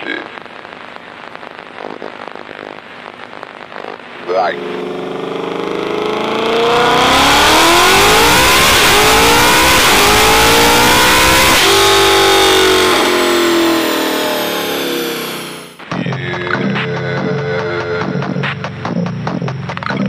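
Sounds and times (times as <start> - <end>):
car engine revving hard: 4.6 - 15.8.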